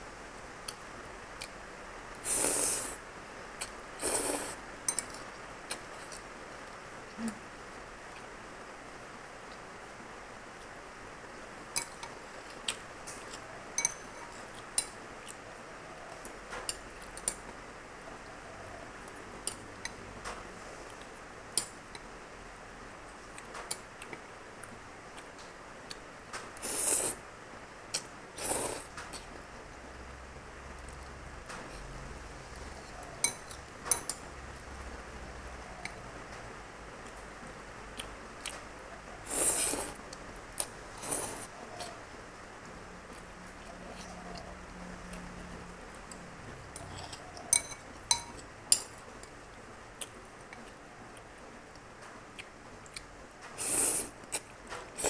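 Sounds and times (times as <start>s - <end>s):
slurping spaghetti: 2.2s - 3.0s, 4.0s - 4.6s, 26.6s - 27.2s, 28.4s - 29.2s, 39.2s - 40.0s, 40.6s - 41.5s, 53.6s - 54.2s.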